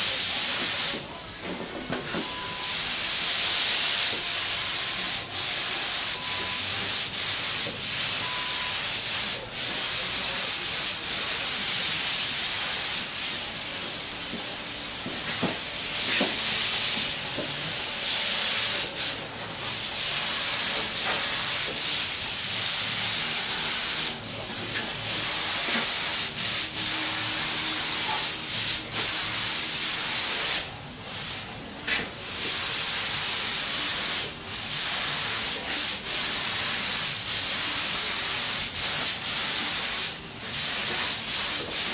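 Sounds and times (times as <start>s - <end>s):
paint spray gun hissing: 32.4s - 41.9s.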